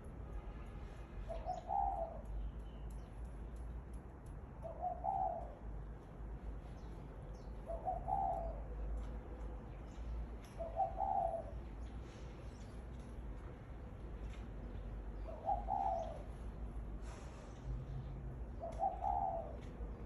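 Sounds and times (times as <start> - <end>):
dove cooing: 1.3 - 2.3, 4.6 - 5.6, 7.6 - 8.7, 10.6 - 11.6, 15.2 - 16.5, 18.5 - 20.0
faint high ticks and chirps: 2.2 - 4.6.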